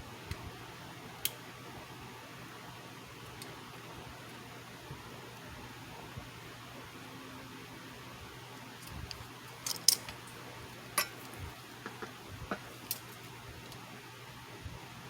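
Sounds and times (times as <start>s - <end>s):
faint hum: 0.0s - 15.0s
steady low hiss: 0.0s - 15.0s
metal tools clicking and clinking: 9.6s - 10.2s, 11.0s - 11.3s.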